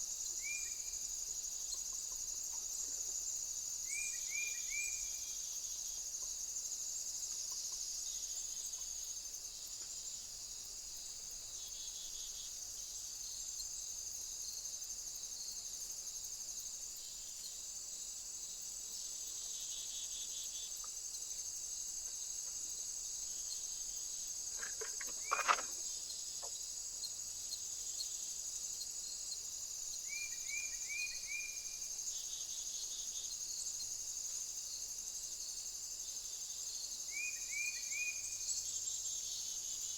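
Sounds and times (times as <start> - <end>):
high-pitched insect chorus: 0.0 - 39.9
small bird chirping: 23.3 - 28.2.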